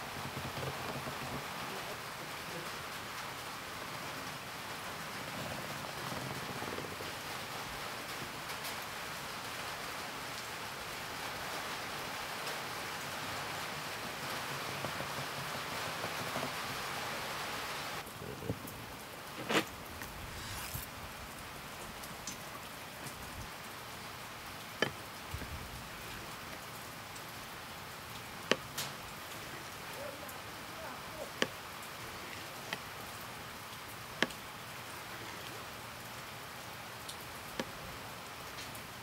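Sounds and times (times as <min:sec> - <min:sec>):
fire crackling pops: 0:18.0 - 0:21.2
fire hissing in stove: 0:19.3 - 0:21.0.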